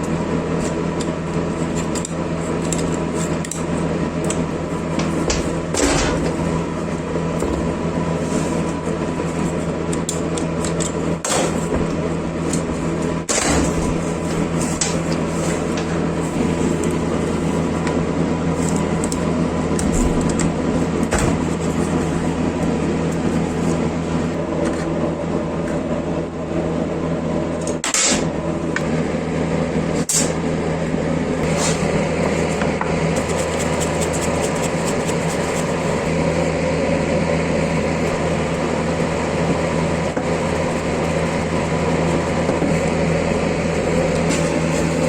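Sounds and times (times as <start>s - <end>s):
electric motor running: 33.0s - 45.0s.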